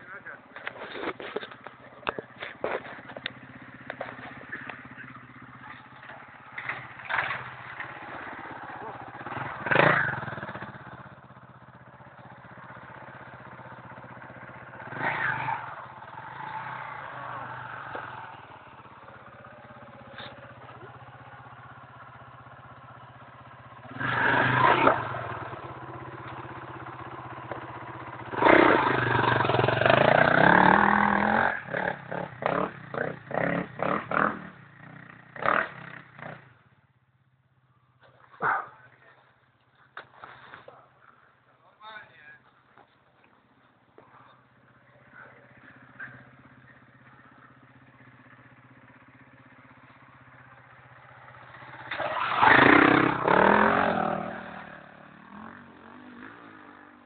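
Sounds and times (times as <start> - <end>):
motorcycle engine revving: 0.0 - 37.3, 42.8 - 57.0.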